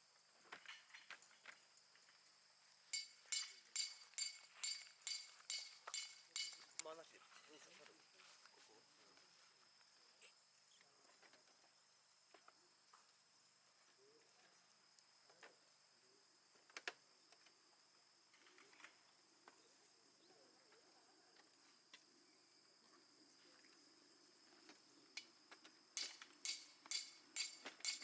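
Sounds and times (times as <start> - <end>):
insect chirring: 2.9 - 7.6, 22.2 - 28.0.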